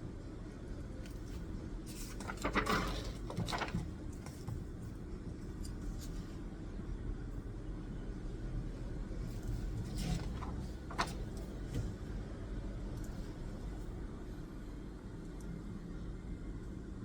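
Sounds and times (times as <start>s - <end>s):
low background rumble: 0.0s - 17.0s
rustling and clicking objects: 1.1s - 4.7s, 9.4s - 12.0s.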